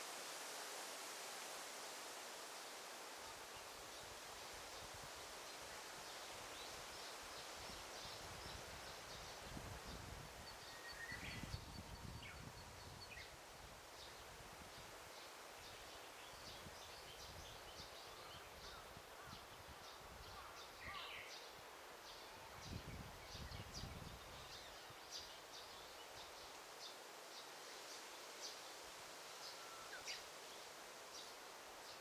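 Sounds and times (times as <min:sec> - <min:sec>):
low wind gusts: 0:00.0 - 0:29.4
leaves rustling: 0:00.0 - 0:32.0
small birds chirping: 0:06.1 - 0:13.4, 0:14.0 - 0:28.6
lower bird song phrase: 0:08.0 - 0:13.4, 0:15.6 - 0:26.4.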